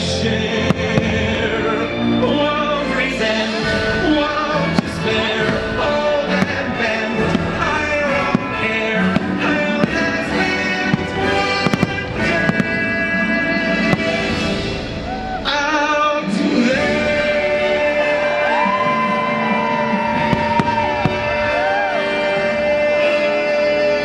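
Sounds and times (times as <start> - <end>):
orchestral music over speakers: 0.0 - 24.0
firework bursts: 3.6 - 15.0, 20.1 - 21.6.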